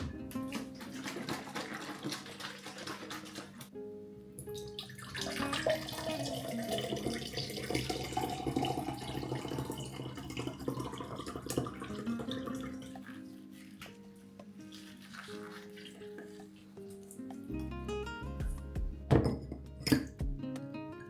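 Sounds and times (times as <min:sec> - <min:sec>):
water running from a tap: 0:00.0 - 0:03.7, 0:04.7 - 0:13.7, 0:14.7 - 0:17.2
soft background music: 0:00.0 - 0:21.0.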